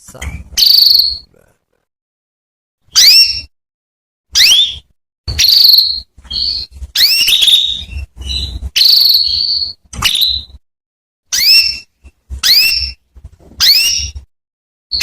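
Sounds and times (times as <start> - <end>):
canary chirps and buzzy trills: 0.0 - 1.5, 2.9 - 3.6, 4.3 - 10.6, 11.3 - 14.3.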